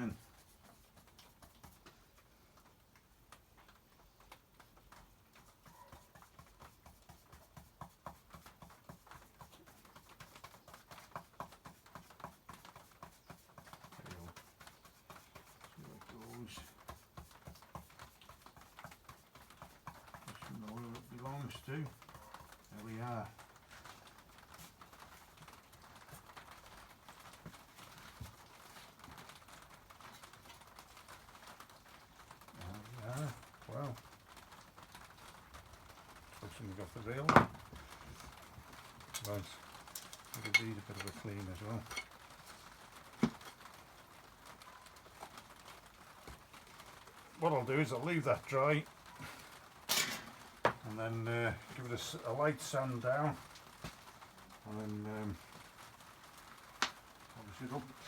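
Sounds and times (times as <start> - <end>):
light taps and handling noise: 36.2 - 43.8, 44.5 - 55.6
low hiss: 46.0 - 58.0.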